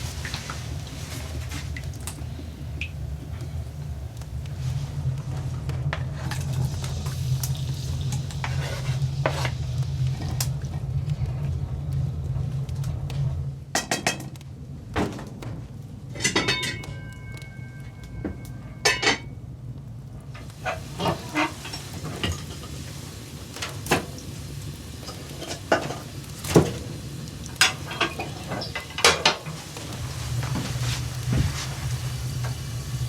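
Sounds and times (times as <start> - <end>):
faint sizzling hiss: 0.0 - 12.6, 20.4 - 33.0
metal cookware clinking: 16.2 - 19.3.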